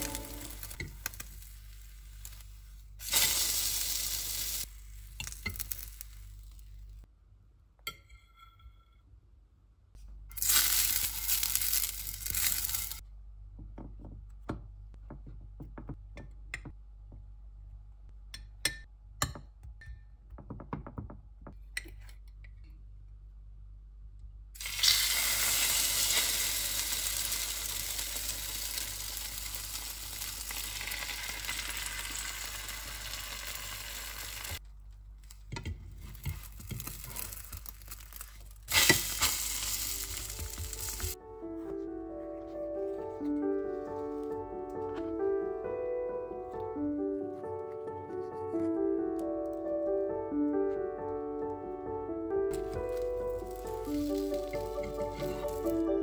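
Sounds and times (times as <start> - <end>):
bread sizzling in a pan: 0.0 - 6.8, 10.4 - 13.0, 24.6 - 34.6, 36.0 - 41.2, 52.6 - 55.8.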